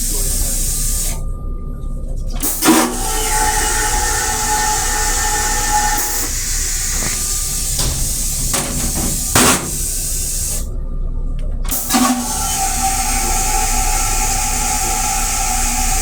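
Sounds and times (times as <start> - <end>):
train interior hiss: 0.0 - 1.2, 2.4 - 10.7.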